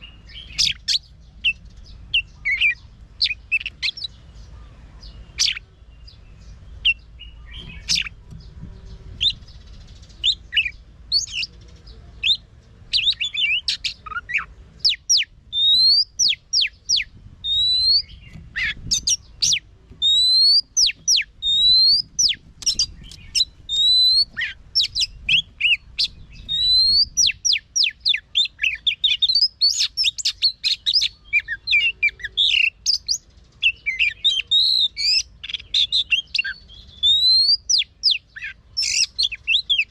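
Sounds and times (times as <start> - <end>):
bird singing varied whistles: 12.2 - 39.9.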